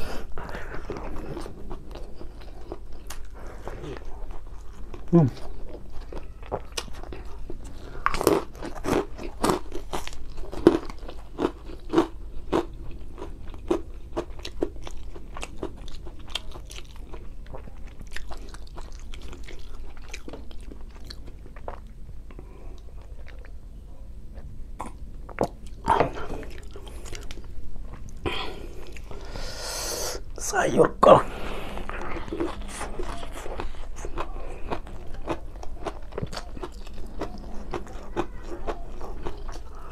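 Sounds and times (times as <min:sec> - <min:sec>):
wet chewing and mouth clicks: 0:00.2 - 0:23.6, 0:31.8 - 0:39.9.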